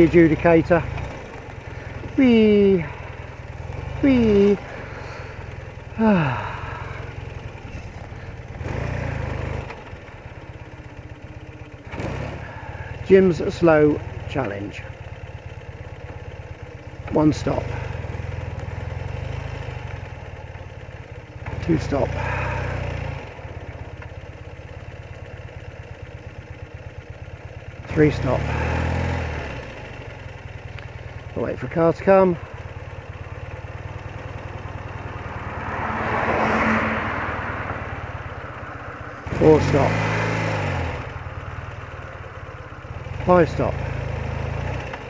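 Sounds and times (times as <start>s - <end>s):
motorcycle engine running: 0.0s - 45.0s
person's voice whee: 6.0s - 7.0s.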